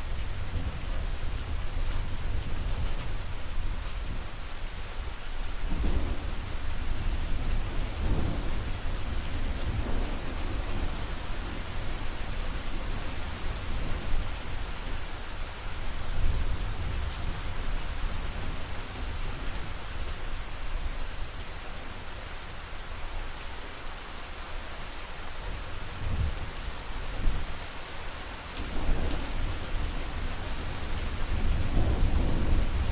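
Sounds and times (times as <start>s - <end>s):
steady rain falling: 0.0s - 32.9s
low thunder rumbling: 5.5s - 22.1s, 28.6s - 32.9s.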